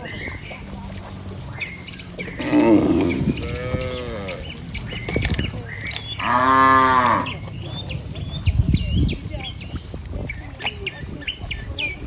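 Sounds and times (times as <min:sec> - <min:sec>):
birds chirping: 0:00.0 - 0:12.0
cattle mooing: 0:02.3 - 0:04.6, 0:06.2 - 0:07.4.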